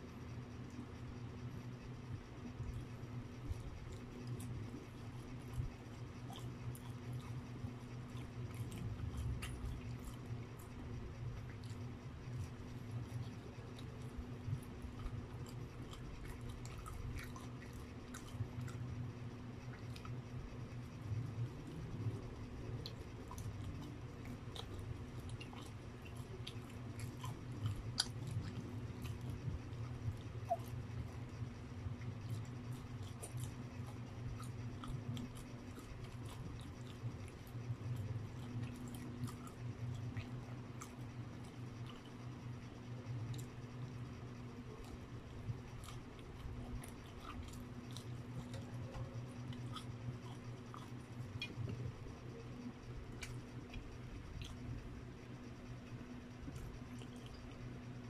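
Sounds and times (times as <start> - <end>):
low steady hum: 0.0 - 58.0
person chewing wetly: 0.5 - 58.0.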